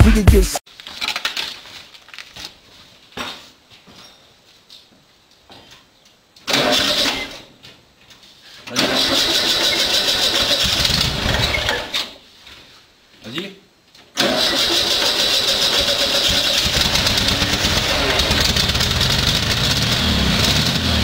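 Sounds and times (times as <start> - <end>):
car starter cranking: 8.7 - 11.9, 14.2 - 20.8.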